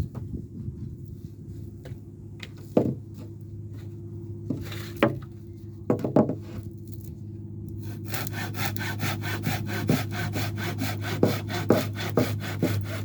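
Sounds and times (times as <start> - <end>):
steady low hum: 0.0 - 13.0
wood knocking: 5.9 - 6.4.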